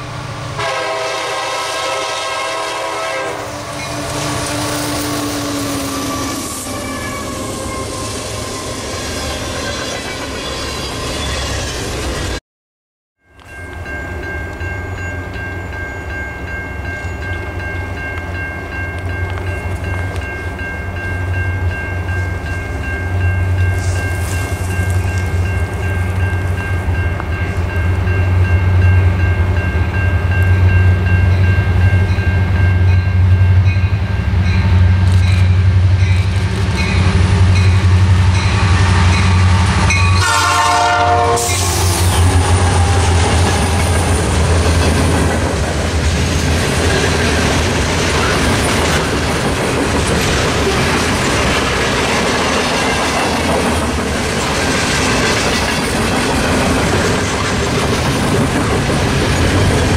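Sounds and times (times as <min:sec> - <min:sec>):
train horn blasts: 0:00.6 - 0:09.1, 0:39.2 - 0:44.2
train wheel clatter: 0:41.4 - 0:59.9
freight cars rolling rumble: 0:41.6 - 0:59.9.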